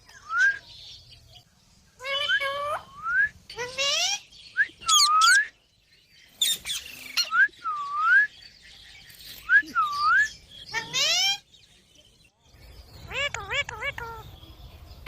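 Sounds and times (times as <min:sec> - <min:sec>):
parrot whistling: 0:04.9 - 0:05.5.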